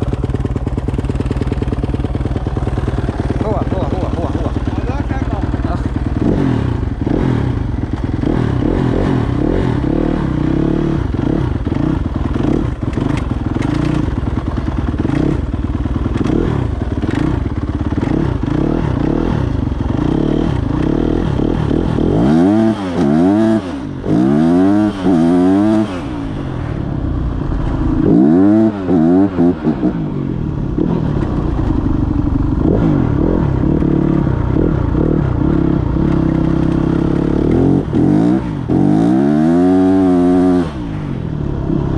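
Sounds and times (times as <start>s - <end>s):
dirt bike engine idling and revving: 0.0s - 41.9s.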